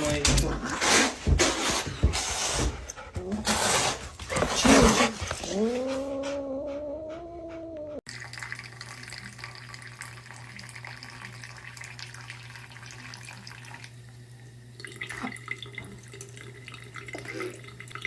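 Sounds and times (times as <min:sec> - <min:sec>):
water running from a tap: 0:08.1 - 0:18.0.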